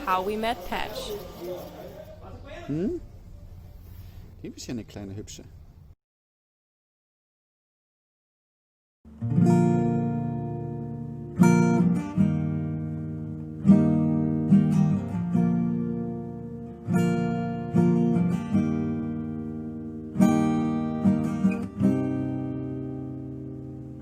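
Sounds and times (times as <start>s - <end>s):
acoustic guitar strumming chords: 9.1s - 24.0s.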